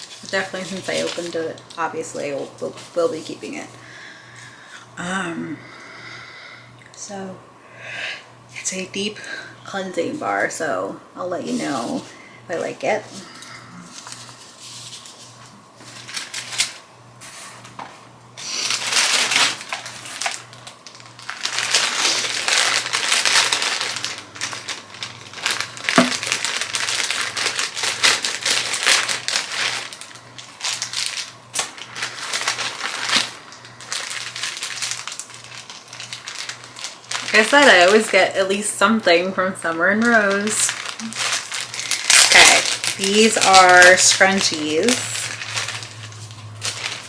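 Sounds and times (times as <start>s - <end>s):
packaging rustling and crinkling: 0.0s - 3.6s, 13.0s - 38.5s, 39.6s - 47.0s.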